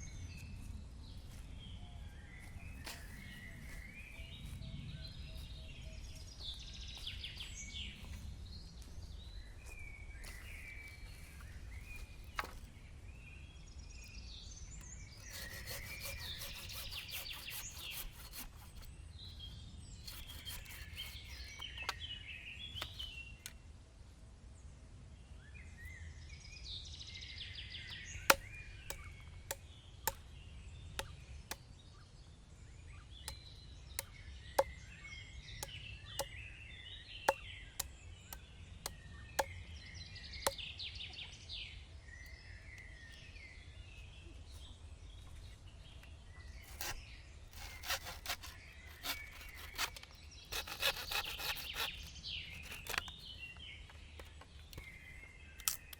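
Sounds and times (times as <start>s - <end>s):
birds chirping and singing: 0.0s - 23.6s, 25.6s - 55.9s
scraping strokes: 15.2s - 18.9s, 20.0s - 21.9s, 46.6s - 53.2s.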